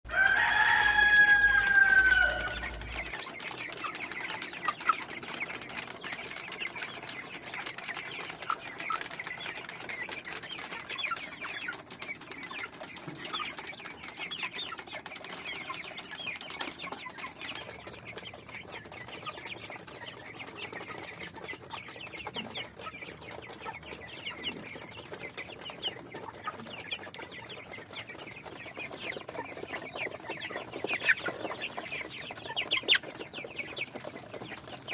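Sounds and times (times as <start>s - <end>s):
rooster crowing: 0.1s - 2.9s
chickens clucking: 0.1s - 34.9s.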